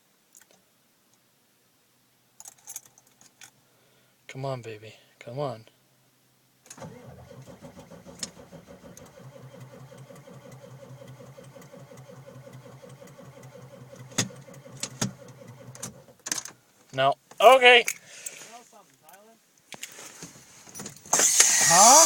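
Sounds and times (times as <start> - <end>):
engine cranking by starter: 6.7 - 16.2, 21.1 - 22.0.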